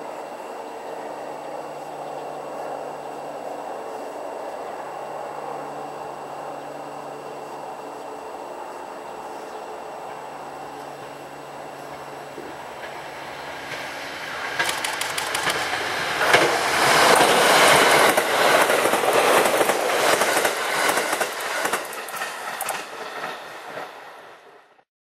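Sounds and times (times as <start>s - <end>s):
electric train passing: 0.0s - 24.8s
wheels clicking over rail joints: 10.0s - 23.9s.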